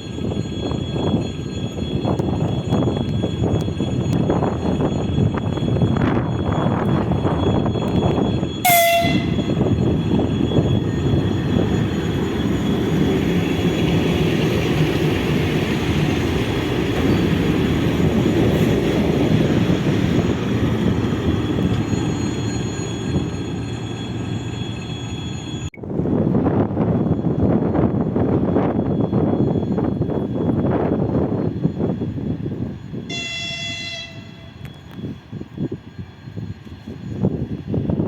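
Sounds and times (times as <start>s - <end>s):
train rumbling: 0.0s - 38.0s
train horn blast: 8.6s - 9.6s, 33.1s - 34.6s.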